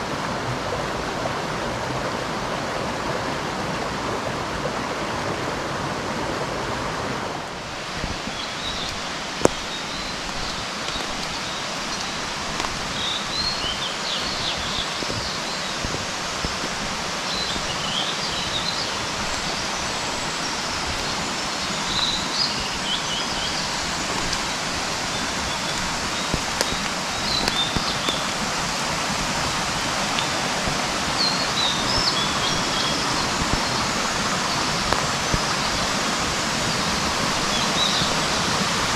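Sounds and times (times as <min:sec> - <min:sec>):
mountain stream running: 0:00.0 - 0:38.9
small birds chirping: 0:08.0 - 0:38.9.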